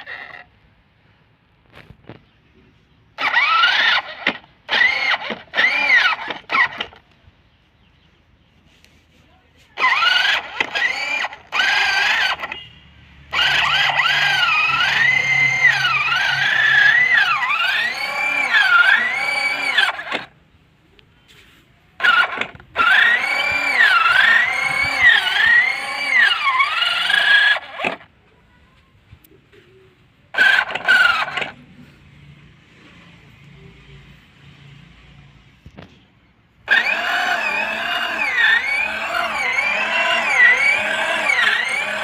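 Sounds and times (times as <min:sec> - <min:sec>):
rc tractor motor whine: 0:00.0 - 0:00.6, 0:03.1 - 0:07.1, 0:09.8 - 0:12.7, 0:13.3 - 0:20.4, 0:22.0 - 0:28.1, 0:30.3 - 0:31.6, 0:36.6 - 0:42.0.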